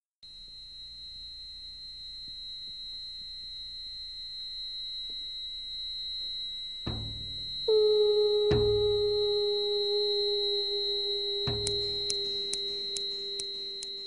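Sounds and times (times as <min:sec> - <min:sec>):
faint low hum: 0:00.3 - 0:14.0
high-pitched electronic tone: 0:07.2 - 0:14.0.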